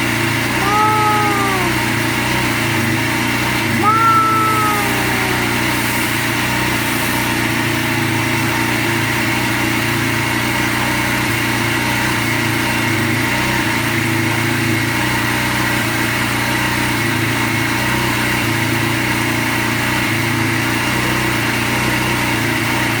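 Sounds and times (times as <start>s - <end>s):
pressure washer engine running: 5.5s - 20.7s.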